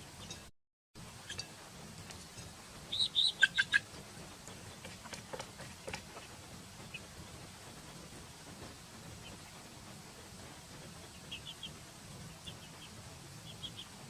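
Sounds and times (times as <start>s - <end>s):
animal chirps: 2.9s - 3.9s.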